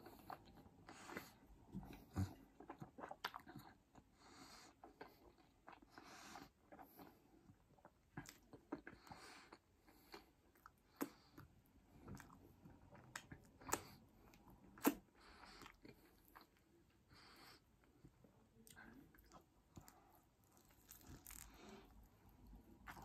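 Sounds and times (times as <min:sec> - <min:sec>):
person chewing food: 0:00.0 - 0:23.0.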